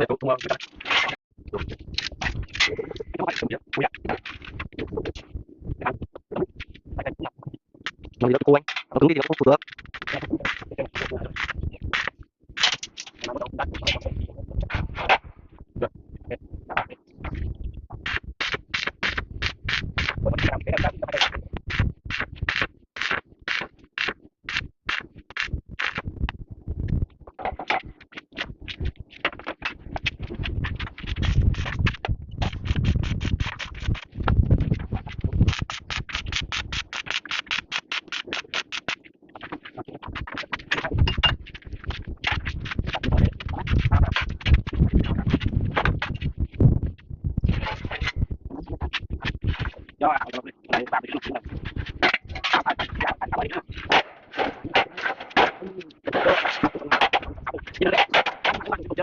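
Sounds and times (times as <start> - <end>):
uneven scraping and rasping: 27.4 - 59.0.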